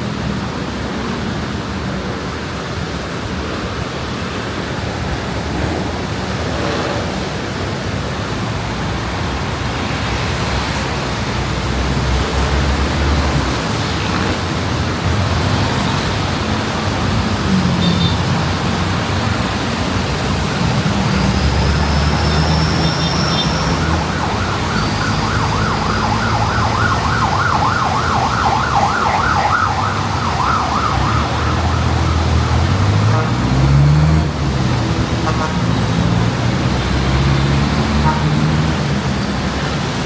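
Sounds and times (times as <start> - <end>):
road traffic engines rumbling: 0.0 - 40.0
emergency siren yelping: 21.0 - 33.4.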